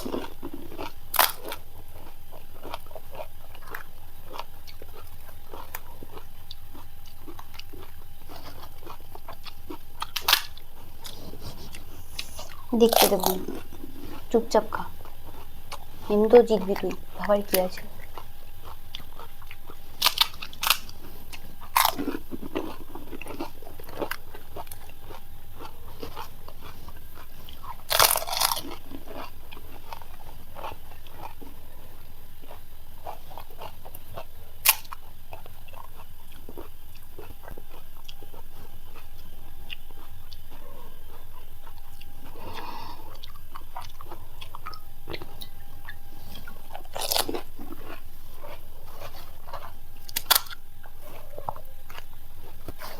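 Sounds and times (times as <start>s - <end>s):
crisp shells crunching when bitten: 0.0s - 11.2s, 17.6s - 26.9s, 27.6s - 31.4s, 33.1s - 38.2s, 43.2s - 52.9s
steady low hum: 0.0s - 52.9s.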